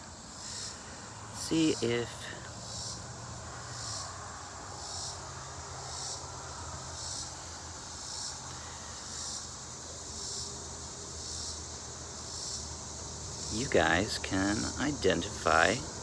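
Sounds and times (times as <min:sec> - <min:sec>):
insect chirping: 0:00.0 - 0:16.0.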